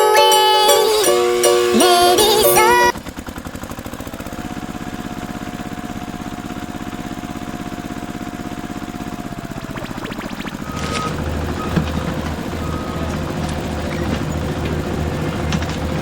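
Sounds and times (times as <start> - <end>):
song playing: 0.0 - 2.9
vehicle engine idling: 2.4 - 16.0.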